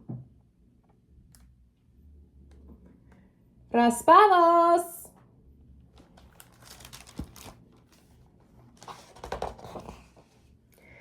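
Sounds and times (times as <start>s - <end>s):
paper rustling and crinkling: 6.0s - 10.4s.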